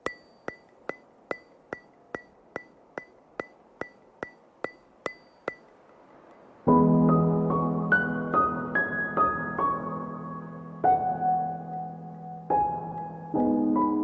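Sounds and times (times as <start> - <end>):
metronome-like ticking: 0.0 - 6.5
ambient music with piano chords: 6.6 - 14.0.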